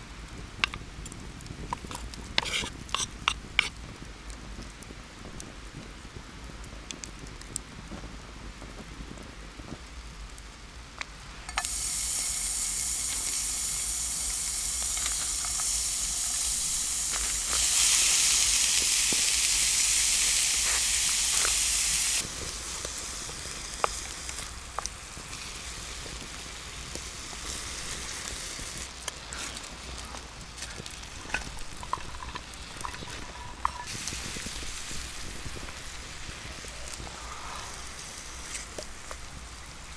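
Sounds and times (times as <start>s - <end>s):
crackles: 0.0s - 39.9s
food sizzling in hot oil: 11.4s - 39.9s.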